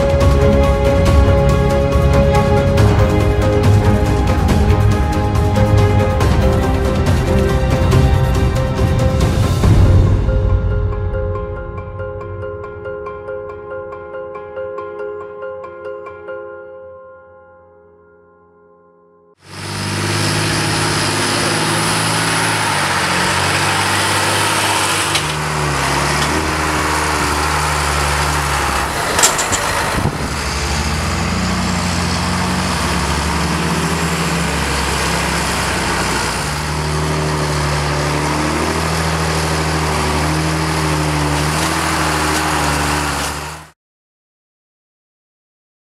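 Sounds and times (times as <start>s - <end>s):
tractor engines under load: 0.0s - 9.7s, 19.4s - 43.7s
forage harvester running: 0.0s - 9.8s, 19.4s - 43.7s.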